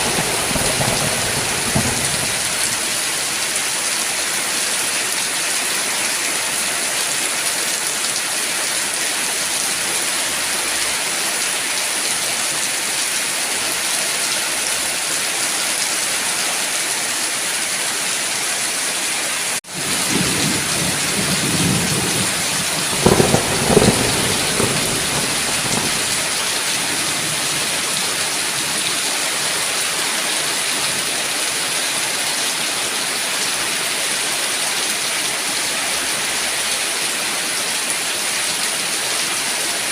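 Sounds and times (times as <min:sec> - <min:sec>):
thunder claps: 0:00.0 - 0:03.4, 0:19.8 - 0:28.6
thunder rumbling: 0:00.0 - 0:03.5, 0:19.7 - 0:28.9
heavy rain falling: 0:00.0 - 0:39.9.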